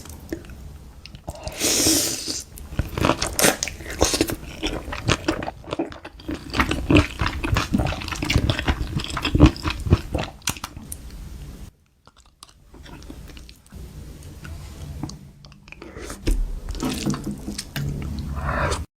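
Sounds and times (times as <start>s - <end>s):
chewing crunchy food: 2.6s - 10.8s, 12.0s - 13.7s.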